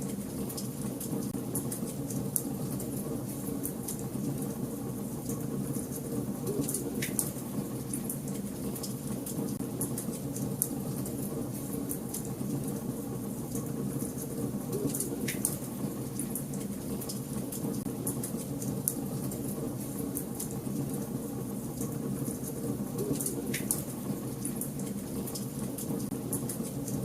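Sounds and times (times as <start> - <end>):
low rumble of flames: 0.0 - 27.0.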